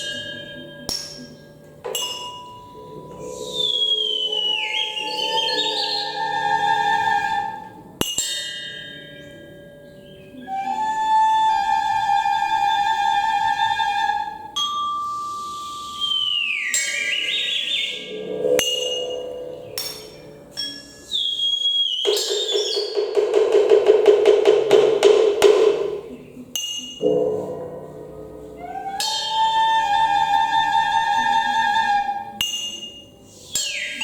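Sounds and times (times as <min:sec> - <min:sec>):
sharp percussion strikes: 0:00.0 - 0:04.5, 0:07.9 - 0:10.2, 0:14.6 - 0:30.4, 0:32.4 - 0:34.0
held ringing percussion tones: 0:00.0 - 0:34.0.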